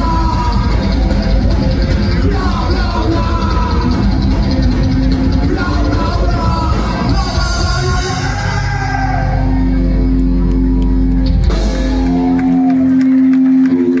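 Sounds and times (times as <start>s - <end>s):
drums and cymbal strikes: 0.0s - 8.9s, 11.3s - 12.7s
deep bass: 0.0s - 14.0s
punk rock band playing live: 0.0s - 14.0s.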